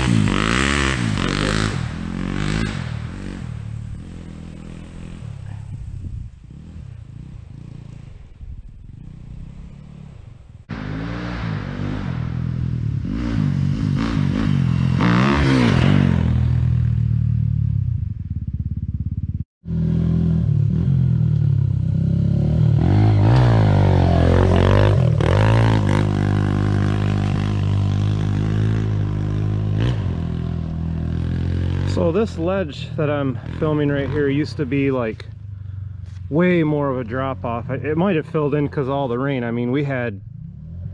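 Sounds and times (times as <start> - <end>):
dirt bike engines revving: 0.0 - 17.3, 19.7 - 40.9.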